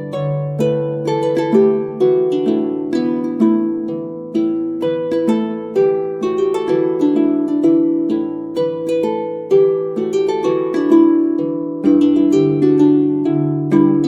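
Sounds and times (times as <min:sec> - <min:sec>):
plucked harp-like music: 0:00.0 - 0:14.0.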